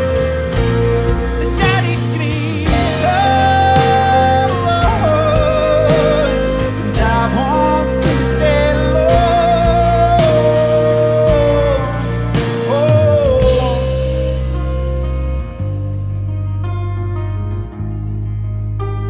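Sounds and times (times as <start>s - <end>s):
drums keeping a steady beat: 0.0s - 14.6s
bass guitar: 0.0s - 19.0s.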